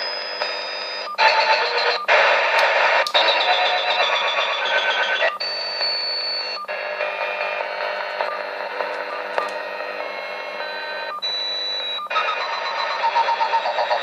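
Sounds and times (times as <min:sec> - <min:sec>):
radio static hiss: 0:01.2 - 0:05.4, 0:06.7 - 0:11.1, 0:12.1 - 0:14.0.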